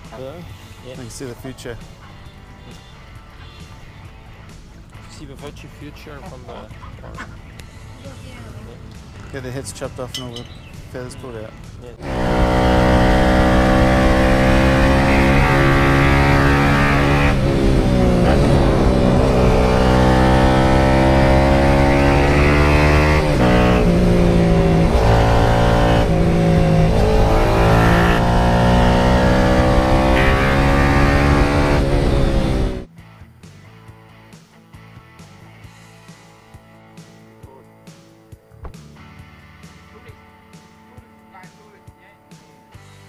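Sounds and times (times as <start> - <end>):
motorcycle engine accelerating: 12.0 - 32.9.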